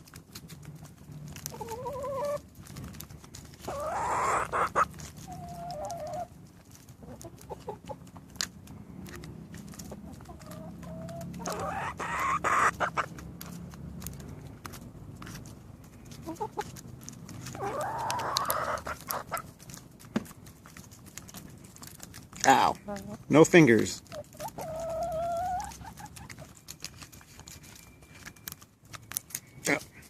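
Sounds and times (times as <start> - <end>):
birds calling: 3.6 - 6.3, 9.8 - 13.2.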